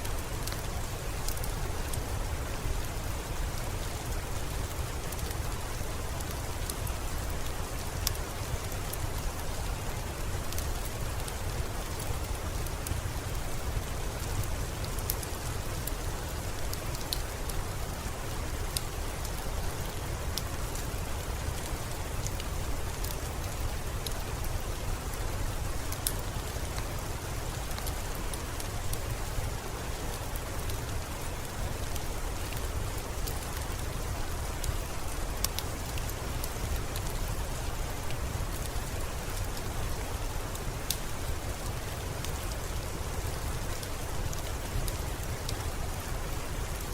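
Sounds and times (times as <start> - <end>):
steady rain hiss: 0.0 - 46.9.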